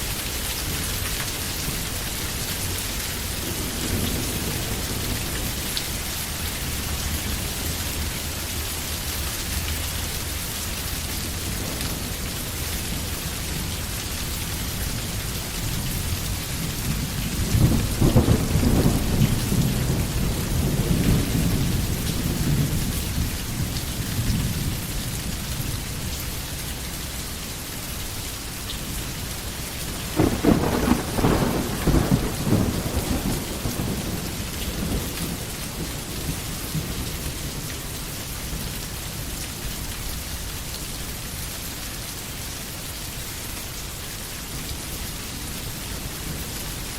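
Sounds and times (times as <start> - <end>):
heavy rain falling: 0.0 - 46.9
thunder rumbling: 3.2 - 8.1, 11.2 - 24.9, 29.9 - 37.7.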